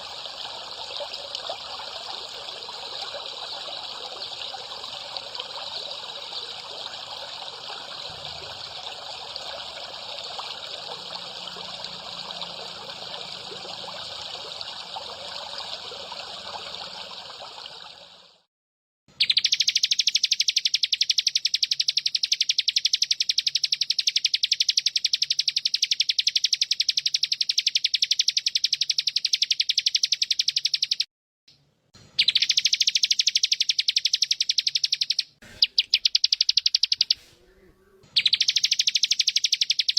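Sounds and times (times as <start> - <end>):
water trickling: 0.0 - 18.4
fast buzzing bird trill: 19.2 - 31.1, 32.2 - 37.3, 38.1 - 39.9.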